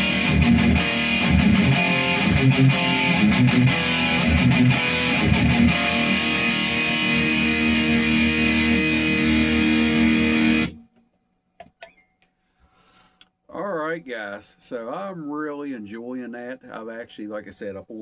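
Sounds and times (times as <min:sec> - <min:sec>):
distorted electric guitar: 0:00.0 - 0:10.8.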